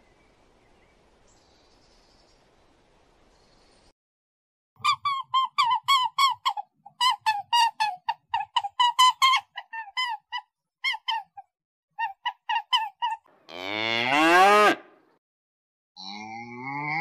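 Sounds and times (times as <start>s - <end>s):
high-pitched bird calls: 4.8s - 13.3s.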